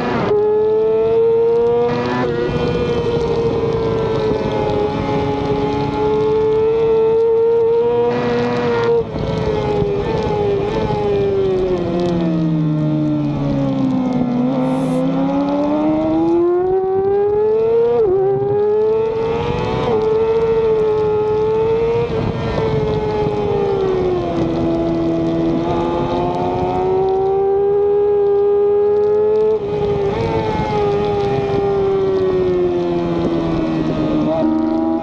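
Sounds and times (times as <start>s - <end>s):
wind rush over microphone: 2.2s - 7.2s, 17.8s - 27.4s, 29.5s - 35.0s
motorcycle engine revving high: 14.5s - 17.1s.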